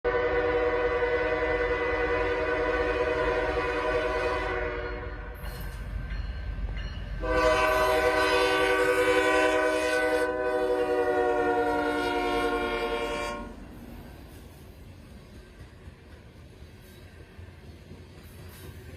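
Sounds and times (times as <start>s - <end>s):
locomotive air horn blasts: 0.1s - 5.4s, 7.2s - 13.7s
passing train rumble: 0.1s - 18.9s.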